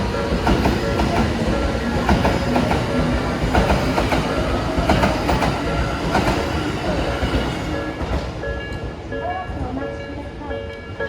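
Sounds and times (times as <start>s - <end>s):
train wheels clicking over rail joints: 0.0s - 9.0s
level crossing warning bell: 0.0s - 11.0s.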